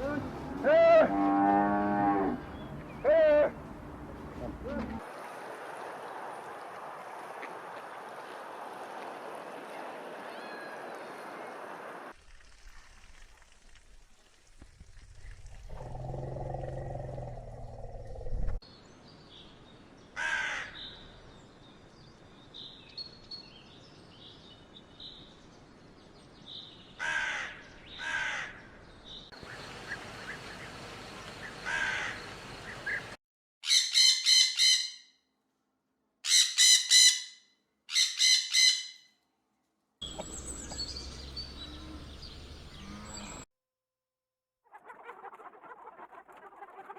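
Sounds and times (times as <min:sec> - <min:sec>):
low-pitched animal call: 0:00.0 - 0:05.0, 0:15.7 - 0:18.6, 0:40.1 - 0:43.4
harsh bird calls: 0:02.3 - 0:05.0, 0:29.4 - 0:35.0, 0:40.0 - 0:43.4.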